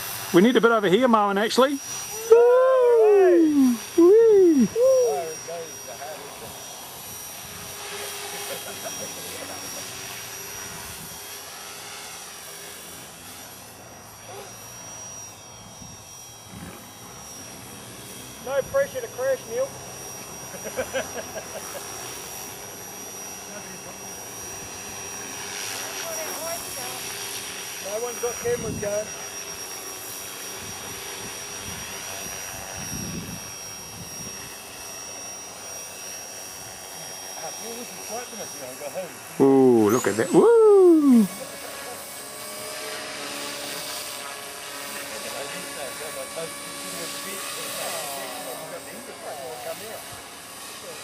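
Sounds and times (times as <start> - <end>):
rc helicopter motor whine: 0.0 - 51.0
wind buffeting microphone: 30.6 - 34.5.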